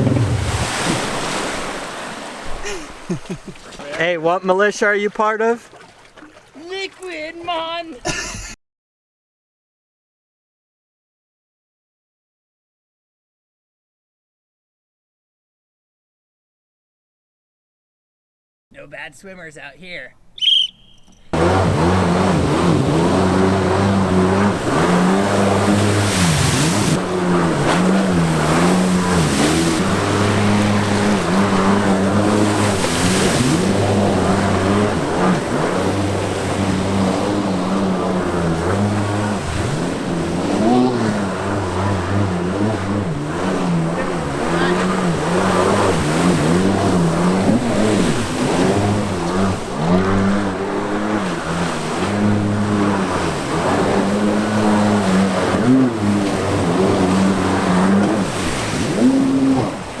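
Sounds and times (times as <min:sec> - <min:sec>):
jet ski engine revving: 0:00.0 - 0:08.3, 0:20.9 - 1:00.0.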